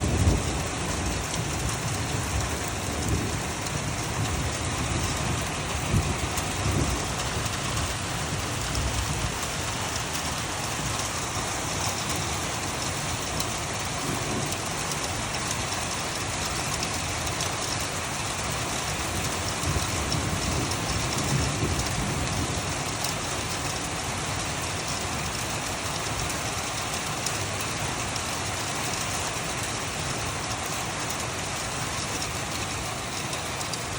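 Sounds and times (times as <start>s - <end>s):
low rumbles: 0.0s - 15.3s
rain falling: 0.0s - 33.9s.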